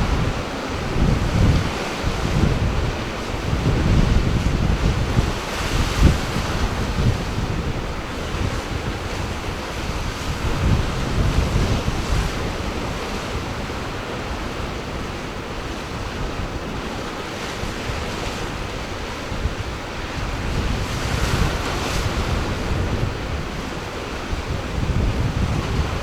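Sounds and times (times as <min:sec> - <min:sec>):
ocean surf washing in: 0:00.0 - 0:26.0
wind buffeting microphone: 0:00.0 - 0:26.0.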